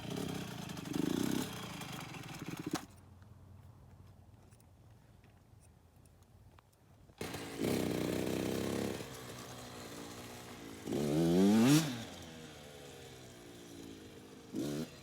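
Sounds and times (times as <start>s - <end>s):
dirt bike engine revving: 0.0s - 2.8s, 7.2s - 13.5s, 14.4s - 15.0s.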